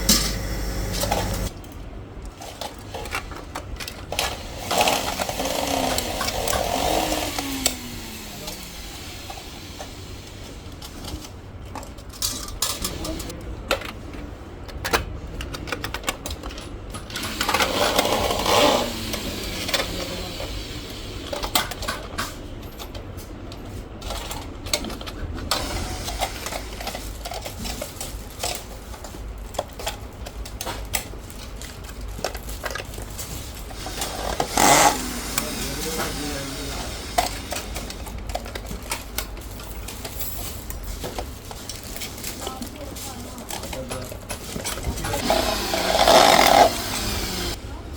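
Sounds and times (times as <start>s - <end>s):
steady low hum: 0.0s - 1.7s
voice: 8.1s - 8.8s, 12.8s - 13.5s, 35.3s - 37.4s, 42.3s - 46.5s.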